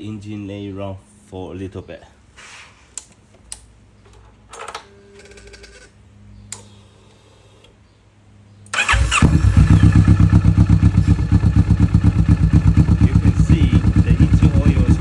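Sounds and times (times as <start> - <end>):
motorcycle starter cranking: 8.7 - 15.0
motorcycle engine idling: 8.8 - 15.0.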